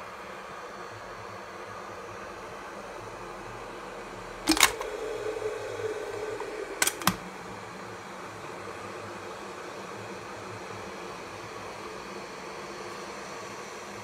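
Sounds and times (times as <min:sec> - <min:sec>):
steady hiss: 0:00.0 - 0:14.0
electric kettle plastic clicks: 0:04.5 - 0:05.0, 0:06.4 - 0:07.2
low hum: 0:04.5 - 0:07.8.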